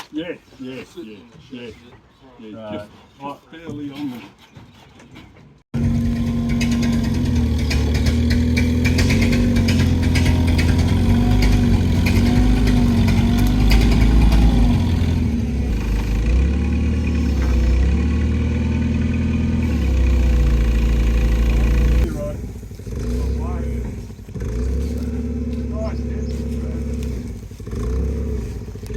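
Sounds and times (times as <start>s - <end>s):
heavy engine running: 5.8s - 28.9s.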